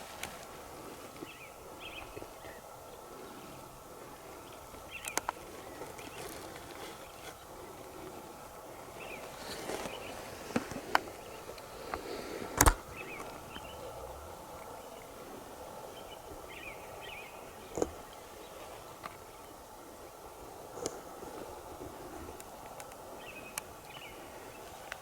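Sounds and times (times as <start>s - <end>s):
faint bird chirps: 12.8s - 20.2s.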